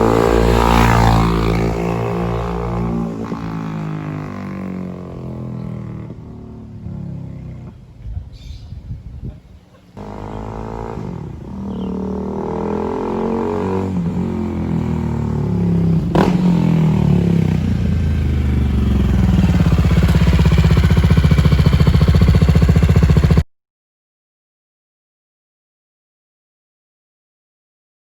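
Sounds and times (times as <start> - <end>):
motorcycle engine under throttle: 0.0 - 7.8, 10.0 - 23.5.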